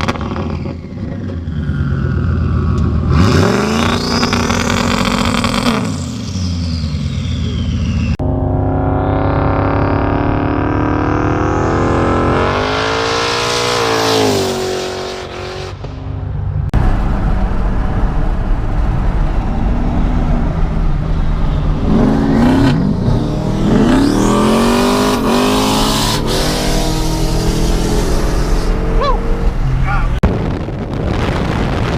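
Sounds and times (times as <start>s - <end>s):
car engine accelerating hard: 0.0s - 30.2s.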